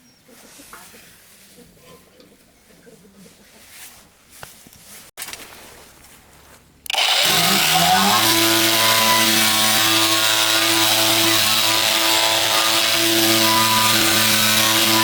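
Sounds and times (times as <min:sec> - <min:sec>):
motor running: 0:06.9 - 0:15.0.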